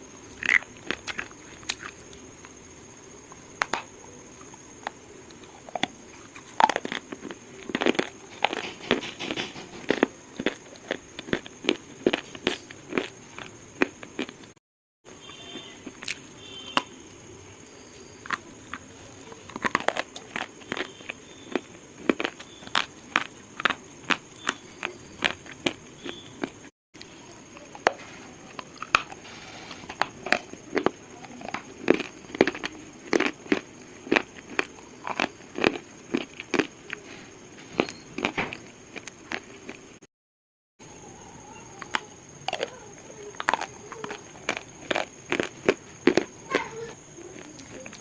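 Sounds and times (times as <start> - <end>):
slate crunching: 27.3 - 39.5.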